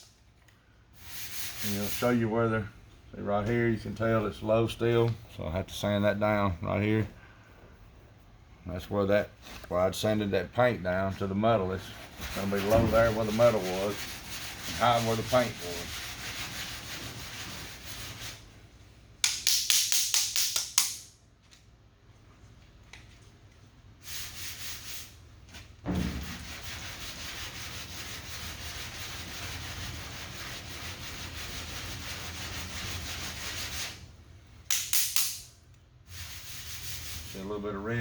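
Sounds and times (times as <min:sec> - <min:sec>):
sandpaper rubbing on car panel: 0:12.0 - 0:18.4, 0:26.1 - 0:34.0
thump: 0:12.7 - 0:13.2, 0:25.8 - 0:26.6.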